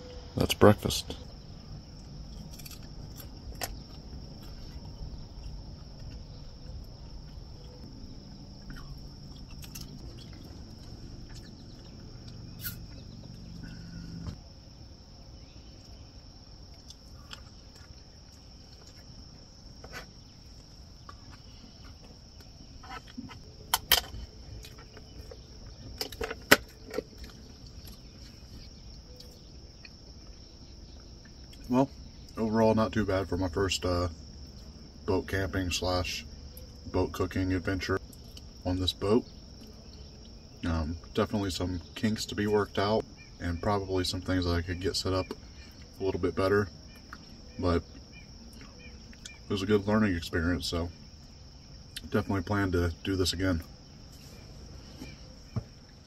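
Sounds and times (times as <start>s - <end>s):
low hum: 0.0s - 42.0s
insects chirping chorus: 0.0s - 56.0s.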